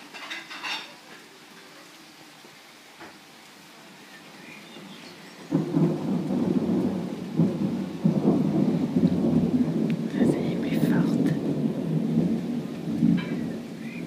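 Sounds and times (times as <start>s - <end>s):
heavy rain: 0.0s - 14.0s
thunder rumbling: 4.8s - 14.0s.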